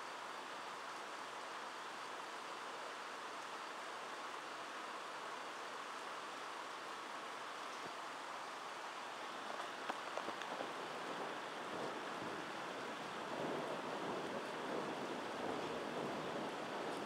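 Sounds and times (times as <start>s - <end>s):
rain hissing: 0.0s - 17.0s.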